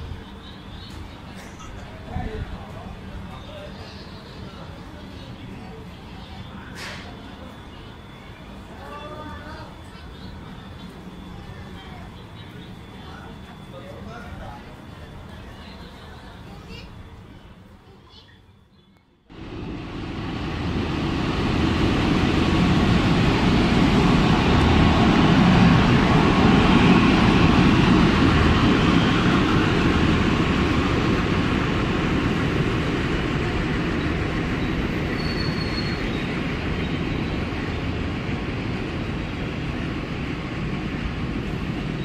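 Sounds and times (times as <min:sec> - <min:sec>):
train wheels rumbling on rail: 0:19.3 - 0:42.0
high wheel squeal: 0:34.6 - 0:37.4.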